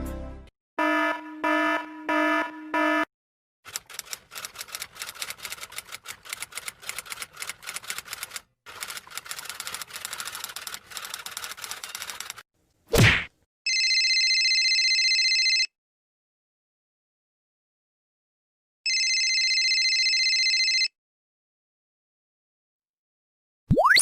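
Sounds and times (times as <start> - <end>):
typing on keys: 3.7 - 12.4.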